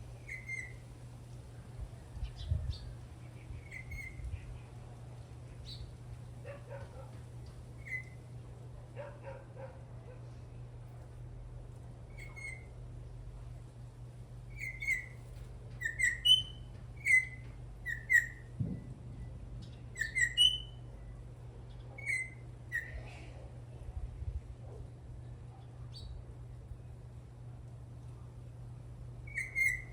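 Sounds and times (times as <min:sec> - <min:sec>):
steady low hum: 0:00.0 - 0:29.9
bird whistled notes: 0:00.2 - 0:00.8, 0:14.6 - 0:15.2, 0:15.8 - 0:18.5, 0:20.0 - 0:20.8, 0:29.3 - 0:29.9.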